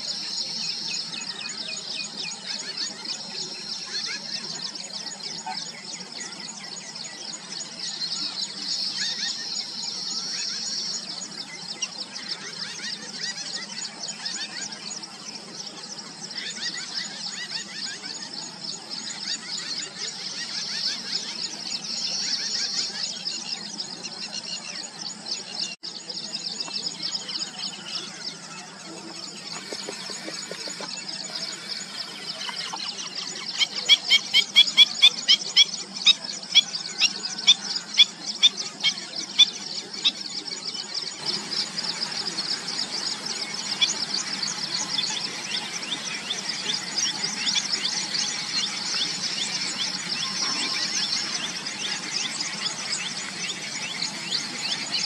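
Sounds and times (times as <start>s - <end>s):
birds chattering: 0.0s - 55.0s
sharp squeaky bird calls: 29.4s - 40.2s.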